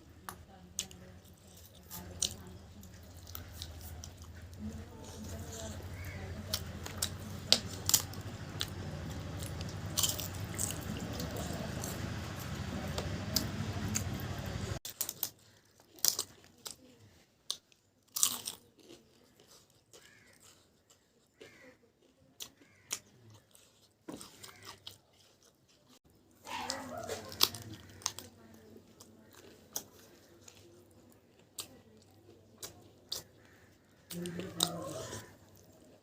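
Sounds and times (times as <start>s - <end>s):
steady low hum: 0.0s - 14.8s
chewing with sharp crunches: 0.0s - 36.0s.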